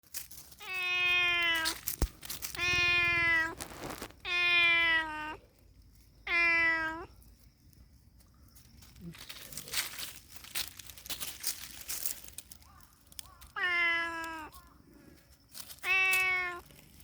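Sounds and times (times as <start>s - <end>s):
cat meowing: 0.6s - 1.8s, 2.6s - 5.5s, 6.3s - 7.2s, 13.5s - 14.6s, 15.8s - 16.7s.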